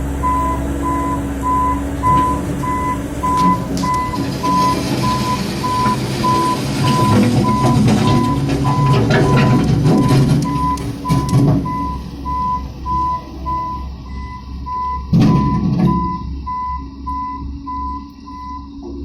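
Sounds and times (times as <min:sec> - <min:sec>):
loader engine rumble: 0:00.0 - 0:19.0
backup alarm beeping: 0:00.2 - 0:18.8
loud clatter: 0:02.0 - 0:11.9.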